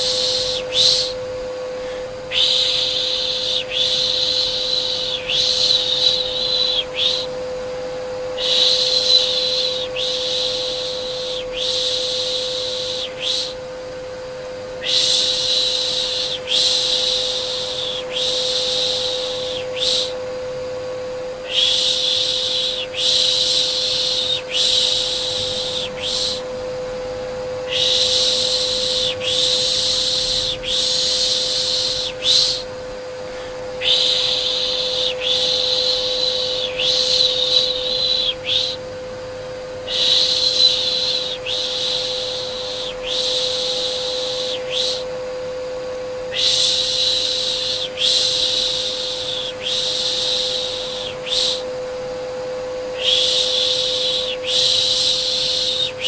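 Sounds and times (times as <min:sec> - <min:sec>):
person shushing: 0:00.0 - 0:01.2, 0:01.8 - 0:07.4, 0:08.4 - 0:13.6, 0:21.4 - 0:26.5, 0:27.7 - 0:38.8, 0:39.9 - 0:45.1
vacuum cleaner hum: 0:00.0 - 0:56.0.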